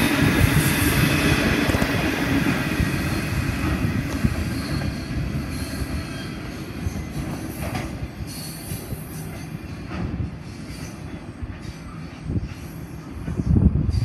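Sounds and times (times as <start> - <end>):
freight train wagons rolling: 0.0 - 14.0
high wheel squeal: 4.3 - 9.9.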